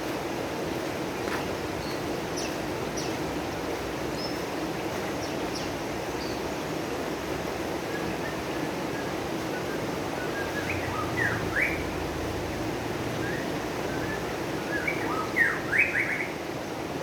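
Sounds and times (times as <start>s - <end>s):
running water rushing: 0.0s - 17.0s
small birds chirping: 1.1s - 3.4s, 4.0s - 6.9s, 7.8s - 12.1s, 12.9s - 16.8s.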